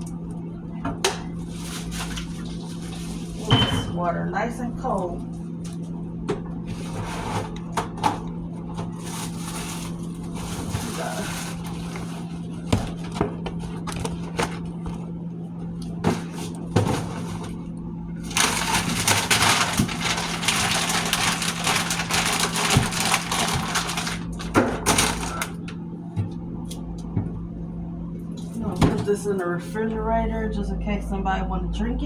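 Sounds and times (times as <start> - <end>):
freezer low hum: 0.0 - 32.0
packaging crinkling and crunching: 8.8 - 15.1, 18.2 - 25.7
frozen packages knocking: 12.6 - 14.8, 18.3 - 25.6.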